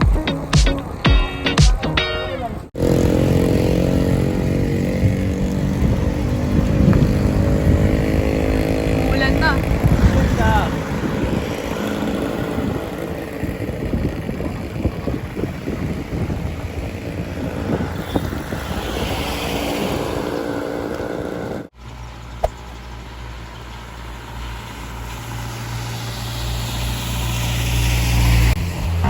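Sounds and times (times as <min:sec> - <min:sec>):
road noise: 0:00.0 - 0:29.0
wind buffeting microphone: 0:02.8 - 0:21.7.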